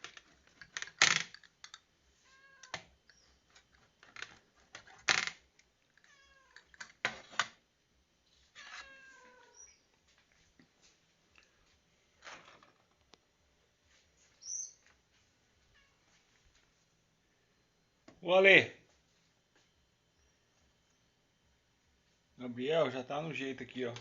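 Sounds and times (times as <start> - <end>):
cat meowing: 2.2 - 2.8, 6.1 - 6.7, 8.6 - 9.7.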